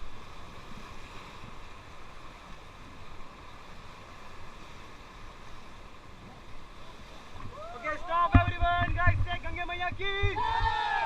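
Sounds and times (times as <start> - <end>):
river water rushing: 0.0 - 11.0
wind noise on microphone: 7.4 - 11.0.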